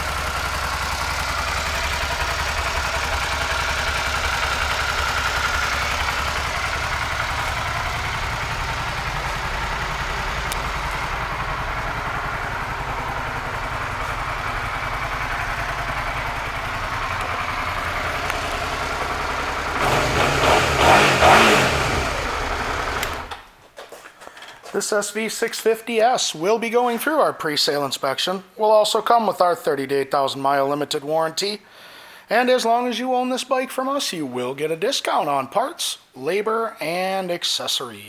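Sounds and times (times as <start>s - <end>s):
motorcycle engine idling and revving: 0.0s - 23.5s.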